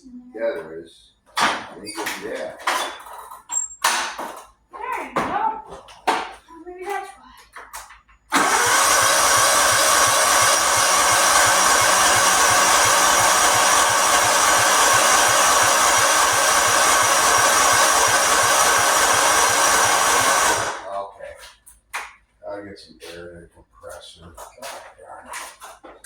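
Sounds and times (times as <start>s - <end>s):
small motor running: 8.3s - 20.9s.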